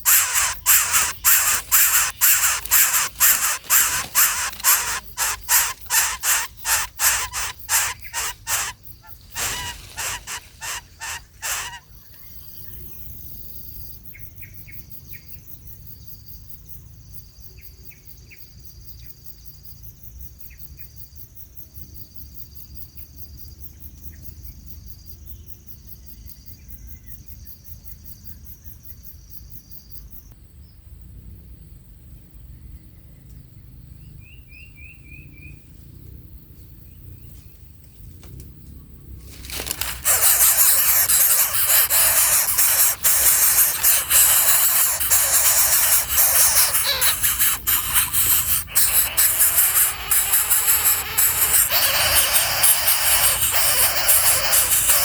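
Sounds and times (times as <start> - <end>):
harsh crow-like bird calls: 0.0 - 8.8, 9.4 - 11.9, 39.6 - 55.0
faint bird chirps: 0.0 - 12.4, 39.5 - 55.0.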